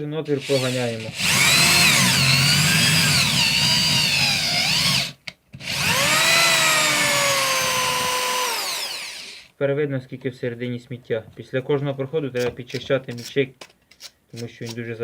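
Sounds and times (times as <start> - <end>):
cordless screwdriver motor whine: 0.6 - 9.5.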